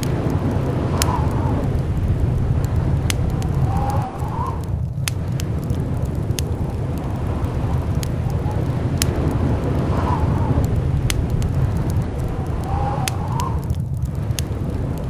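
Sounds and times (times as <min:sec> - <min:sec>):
blizzard wind rumbling and howling: 0:00.0 - 0:15.0
sharp clicks: 0:02.6 - 0:09.9, 0:10.5 - 0:15.0.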